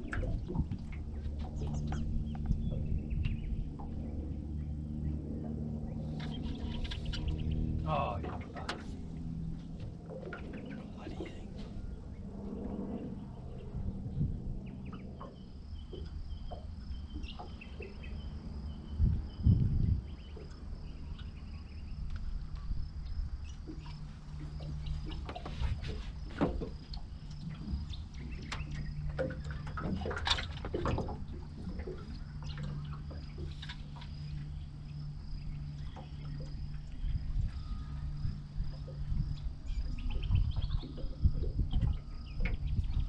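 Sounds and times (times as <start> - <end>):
water splashing and dripping: 0.0 - 4.4, 22.0 - 34.8
steady low hum: 0.0 - 43.0.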